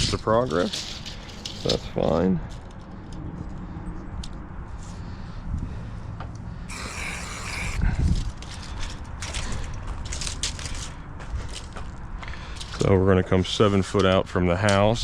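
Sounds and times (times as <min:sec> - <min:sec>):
spray can hissing: 0:06.7 - 0:07.9.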